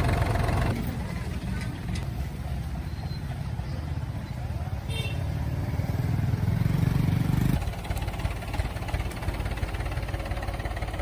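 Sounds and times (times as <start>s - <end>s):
engine running: 0.0s - 2.7s, 5.4s - 11.0s.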